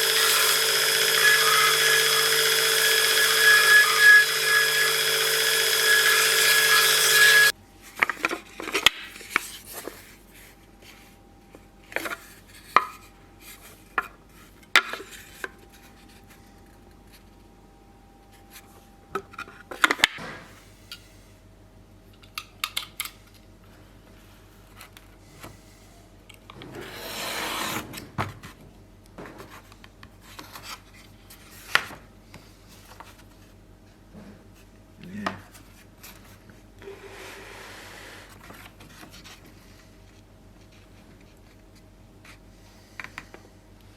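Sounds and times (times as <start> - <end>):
power tool running: 0.0 - 7.5.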